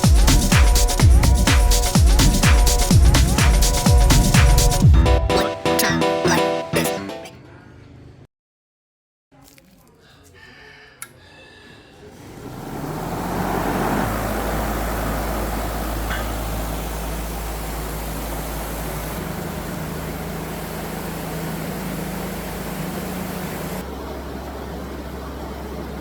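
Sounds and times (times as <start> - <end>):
motor humming: 12.3 - 26.0.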